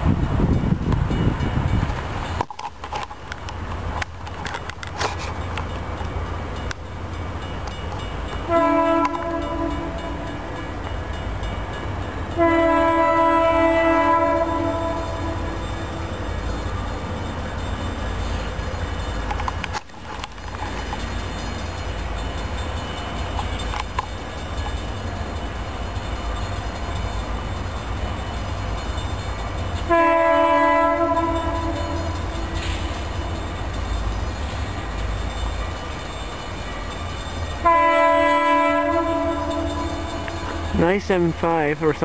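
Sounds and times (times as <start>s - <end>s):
train rumbling: 0.0s - 42.0s
locomotive chime air horn: 8.4s - 10.6s, 12.2s - 16.0s, 29.4s - 33.6s, 37.2s - 42.0s.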